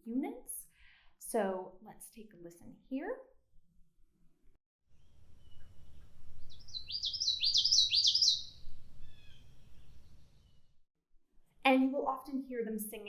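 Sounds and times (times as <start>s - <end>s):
bird singing repeated phrases: 6.5s - 9.4s.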